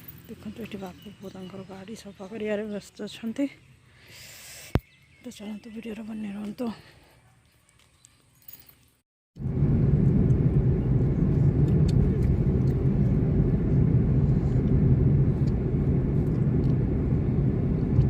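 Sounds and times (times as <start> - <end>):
moving car rumble: 9.4 - 18.0.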